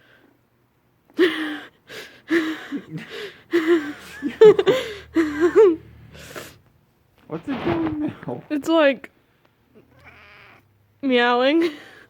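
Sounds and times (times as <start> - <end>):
person laughing: 2.3 - 6.5.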